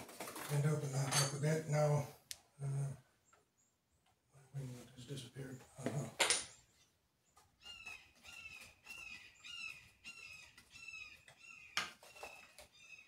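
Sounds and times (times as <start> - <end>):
bird squawking calls: 7.6 - 13.0.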